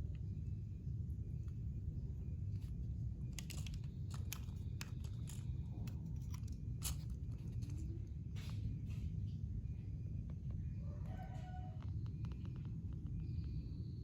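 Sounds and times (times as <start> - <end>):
steady low hum: 0.0 - 14.0
plastic bricks clicking together: 3.3 - 7.9.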